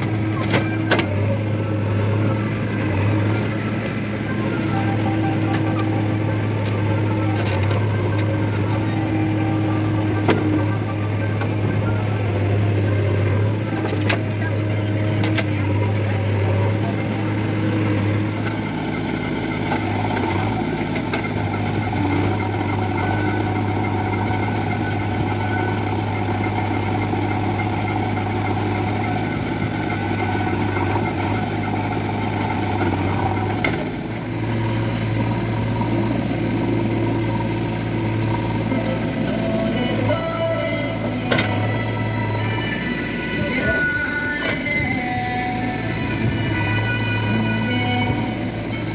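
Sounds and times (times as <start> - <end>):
heavy diesel engine humming: 0.0 - 48.9.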